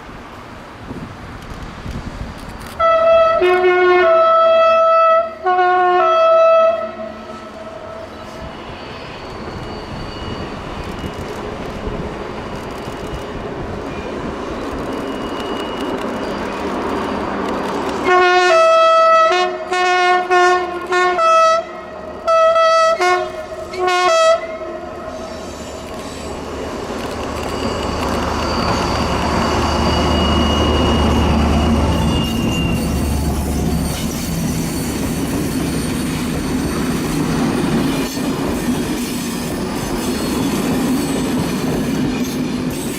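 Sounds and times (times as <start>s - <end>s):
train rumble: 0.0s - 42.9s
locomotive horn blasts: 2.8s - 8.4s, 18.0s - 25.5s.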